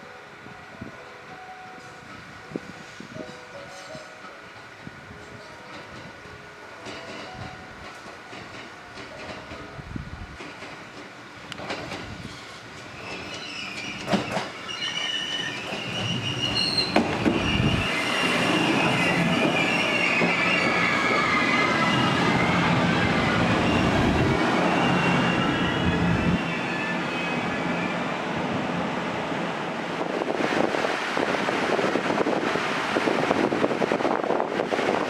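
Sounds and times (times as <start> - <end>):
train rumbling into station: 0.0 - 35.0
high wheel squeal: 13.0 - 28.2.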